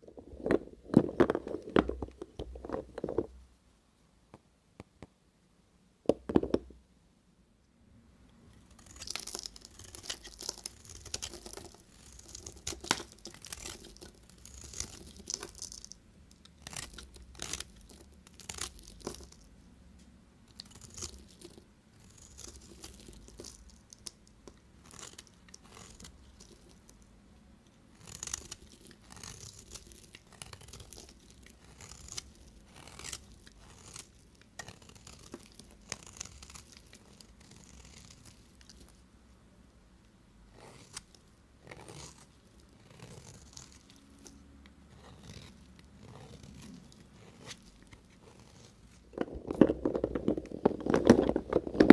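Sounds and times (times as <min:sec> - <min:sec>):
knife cutting soap: 0:08.6 - 0:15.8, 0:16.4 - 0:19.4, 0:20.5 - 0:26.8, 0:28.0 - 0:39.0.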